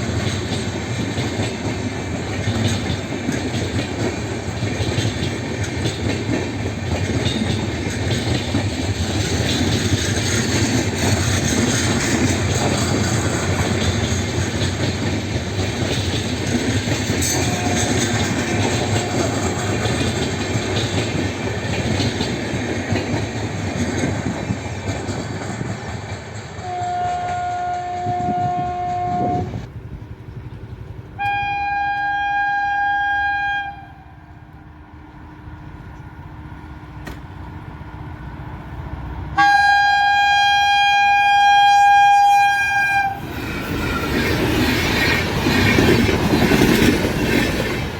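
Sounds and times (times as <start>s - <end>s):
train wheels rumbling on track: 0.0s - 47.9s
locomotive horn blasts: 17.3s - 19.6s, 26.6s - 29.6s, 31.2s - 34.4s, 39.4s - 43.2s.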